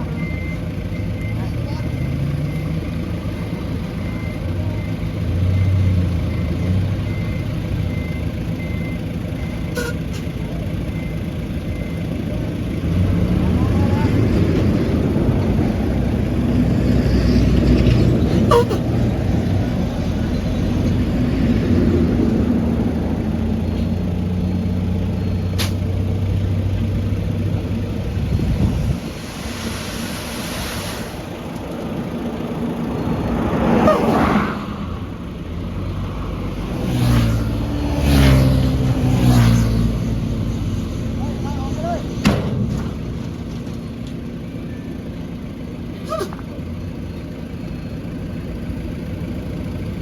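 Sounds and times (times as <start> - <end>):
heavy diesel engine running: 0.0 - 50.0.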